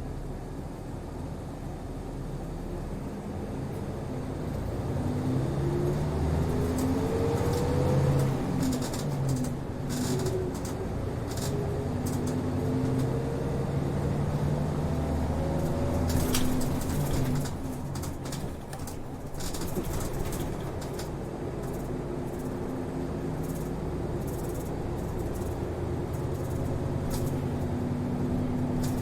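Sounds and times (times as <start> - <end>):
bus engine hum: 0.0 - 29.0
cabin rattles and clicks: 15.6 - 22.6.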